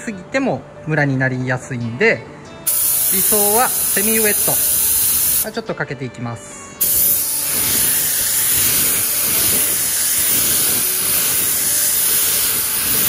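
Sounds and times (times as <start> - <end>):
paint spray gun hissing: 2.7 - 5.5, 6.8 - 13.0.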